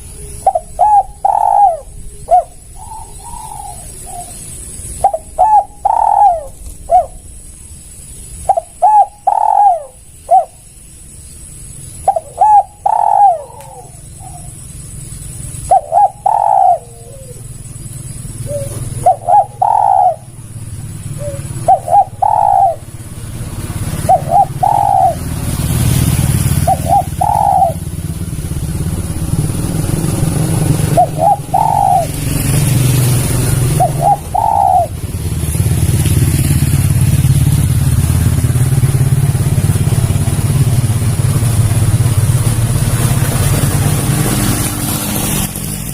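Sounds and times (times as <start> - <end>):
dove cooing: 0.0 - 7.4, 8.4 - 10.7, 11.9 - 37.4
low engine-like rumble: 0.0 - 45.9.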